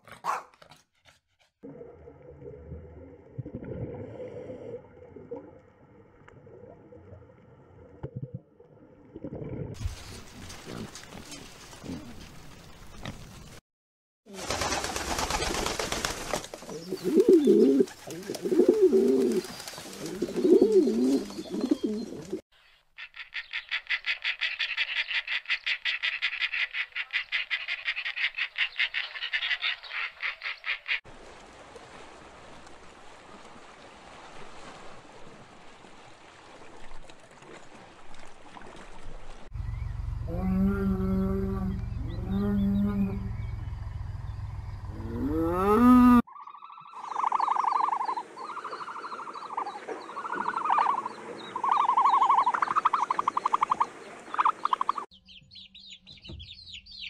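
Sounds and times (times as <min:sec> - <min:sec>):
long low animal calls: 0:39.6 - 0:43.8, 0:44.9 - 0:52.7
low repeated animal calls: 0:39.6 - 0:55.1.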